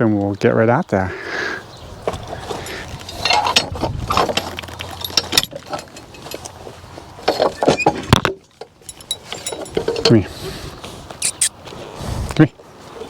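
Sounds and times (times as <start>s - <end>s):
metal harness chains jangling: 2.4s - 6.6s, 8.8s - 10.2s.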